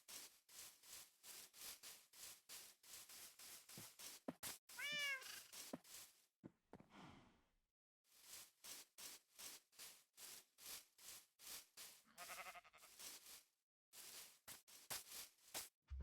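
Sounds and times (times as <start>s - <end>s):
cat meowing: 4.8s - 5.4s.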